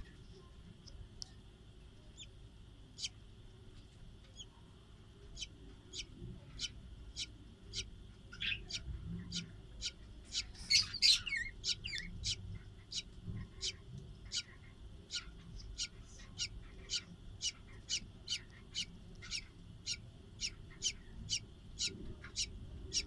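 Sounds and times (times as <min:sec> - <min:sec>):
budgerigars chirping: 0:03.0 - 0:03.2, 0:05.4 - 0:23.0.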